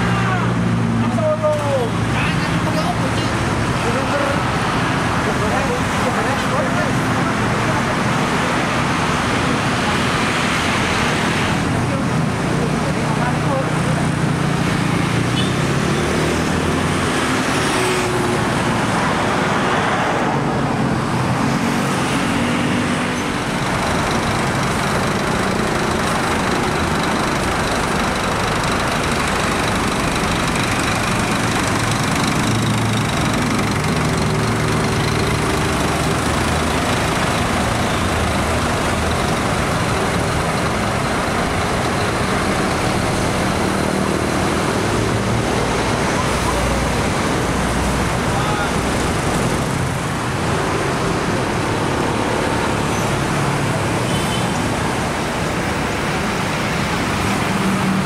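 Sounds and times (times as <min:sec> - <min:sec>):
passing road traffic: 0:00.0 - 0:58.0
bus diesel engine pulling away: 0:21.5 - 0:53.9.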